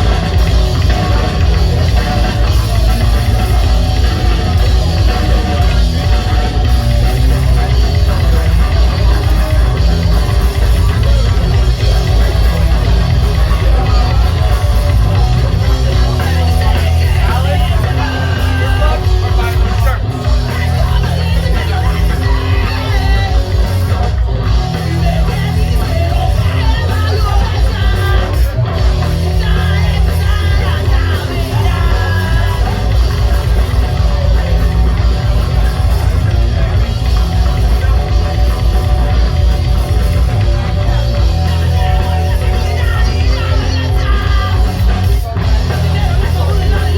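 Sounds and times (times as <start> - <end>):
loud rock band playing: 0.0 - 46.9
yelled vocals: 0.0 - 46.9.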